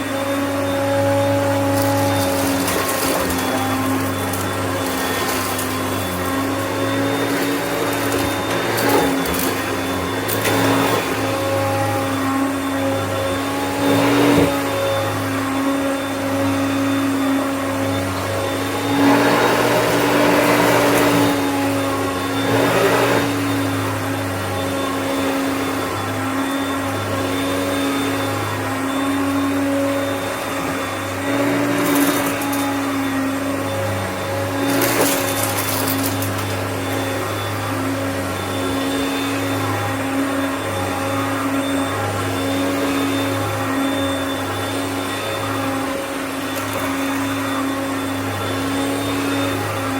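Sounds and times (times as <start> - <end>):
vacuum cleaner running: 0.0 - 49.9
debris rattling in vacuum: 1.0 - 12.4, 31.2 - 37.6.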